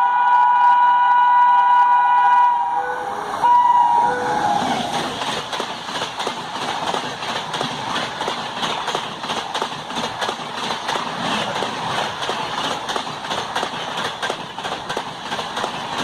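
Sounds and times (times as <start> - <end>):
locomotive air horn: 0.0 - 4.7
train passing at speed: 0.0 - 16.0
wheels clacking over rail joints: 4.6 - 16.0.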